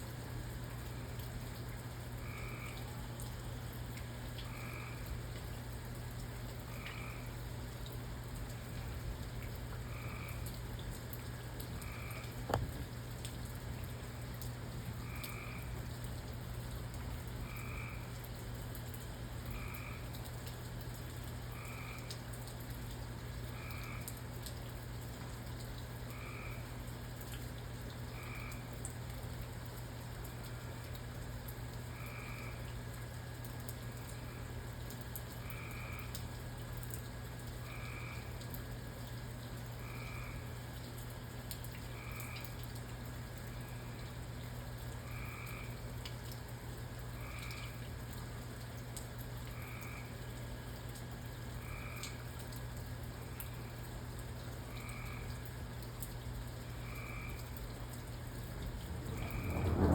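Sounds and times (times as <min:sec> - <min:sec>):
low steady hum: 0:00.0 - 0:59.9
rain hiss: 0:00.0 - 0:59.9
frog croaking: 0:02.1 - 0:02.9, 0:04.4 - 0:05.1, 0:06.7 - 0:07.4, 0:09.8 - 0:10.6, 0:11.8 - 0:12.8, 0:15.0 - 0:15.8, 0:17.4 - 0:18.2, 0:19.4 - 0:20.2, 0:21.5 - 0:22.2, 0:23.6 - 0:24.2, 0:26.1 - 0:26.8, 0:28.2 - 0:28.7, 0:32.0 - 0:32.7, 0:35.4 - 0:36.2, 0:37.6 - 0:38.4, 0:39.8 - 0:40.5, 0:42.0 - 0:42.6, 0:45.0 - 0:45.8, 0:47.1 - 0:47.8, 0:49.5 - 0:50.2, 0:51.6 - 0:52.3, 0:54.7 - 0:55.5, 0:56.8 - 0:57.7, 0:58.8 - 0:59.9.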